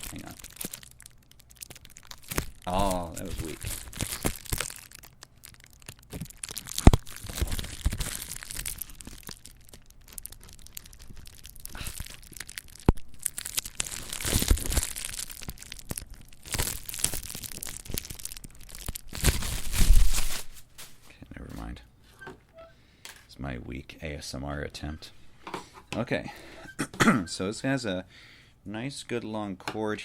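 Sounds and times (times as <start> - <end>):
packaging crinkling and tearing: 0.0 - 21.0.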